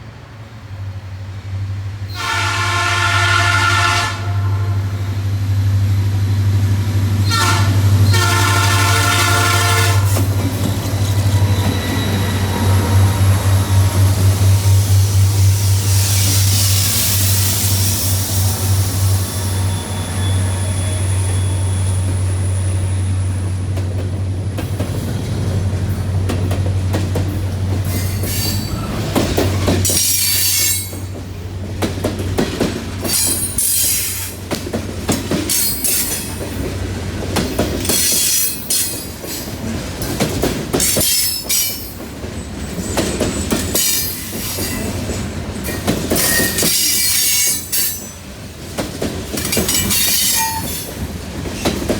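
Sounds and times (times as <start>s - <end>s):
diesel locomotive drone: 0.0s - 51.9s
train wheel squeals: 10.1s - 23.8s, 27.8s - 31.2s, 33.0s - 34.4s, 35.5s - 36.4s, 37.8s - 39.6s, 40.8s - 48.2s, 49.4s - 51.9s
wheels clicking over rail joints: 23.7s - 51.9s.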